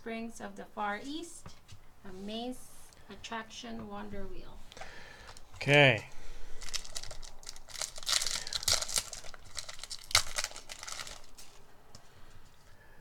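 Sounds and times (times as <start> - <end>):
foil wrapper tearing and crinkling: 5.2 - 5.5, 6.4 - 11.6.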